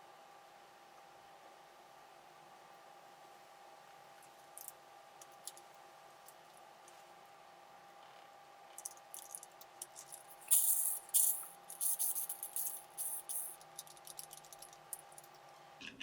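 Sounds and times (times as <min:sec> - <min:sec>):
faint steady hum: 0:00.0 - 0:16.0
small hard parts rattling: 0:08.8 - 0:16.0.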